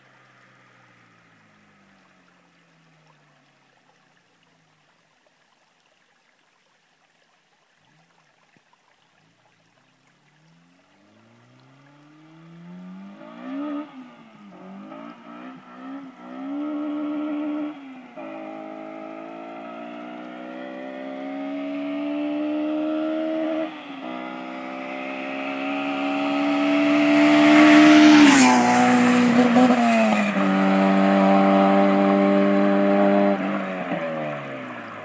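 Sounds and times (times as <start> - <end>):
car accelerating hard past: 11.2 - 35.0.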